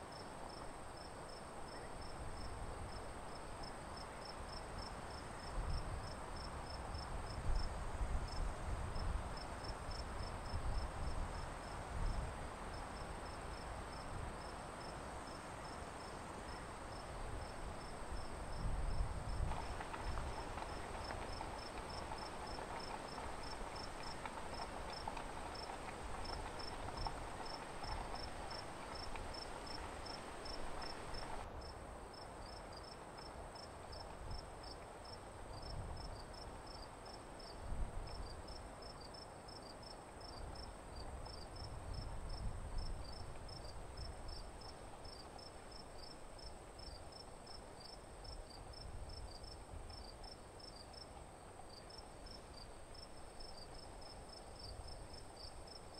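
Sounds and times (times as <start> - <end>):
background hiss: 0.0 - 55.9
cricket chirping: 51.7 - 55.9.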